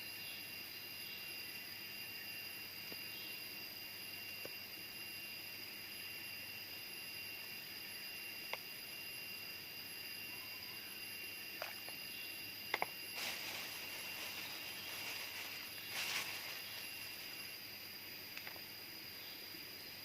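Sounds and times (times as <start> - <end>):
jungle insects droning: 0.0 - 20.0
short rustle: 13.2 - 17.5.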